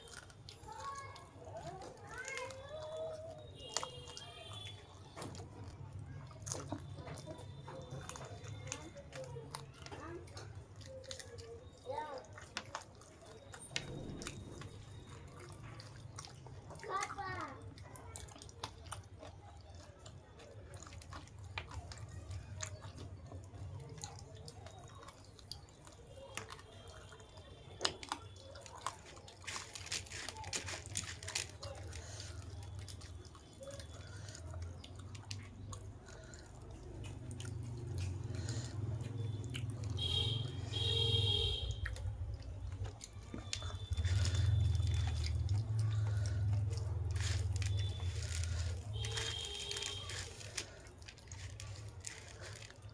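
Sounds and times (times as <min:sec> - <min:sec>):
wet chewing: 0:00.0 - 0:52.9
mouth clicks and smacks: 0:17.6 - 0:52.9.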